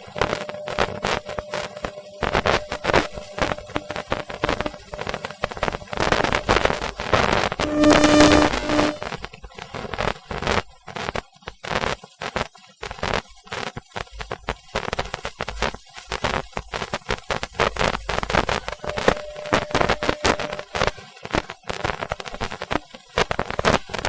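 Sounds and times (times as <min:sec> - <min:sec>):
steady electric tone: 0:00.0 - 0:09.3, 0:18.2 - 0:21.0
electric crackling bursts: 0:00.0 - 0:24.0.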